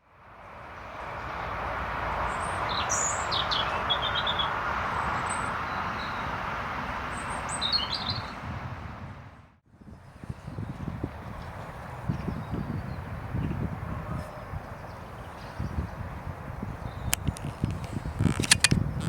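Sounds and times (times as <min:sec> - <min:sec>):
small birds chirping: 0:02.3 - 0:08.4, 0:14.3 - 0:19.0.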